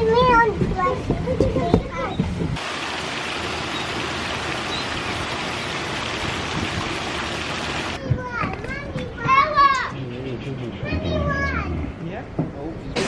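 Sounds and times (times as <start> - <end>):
running water rushing: 2.5 - 8.0.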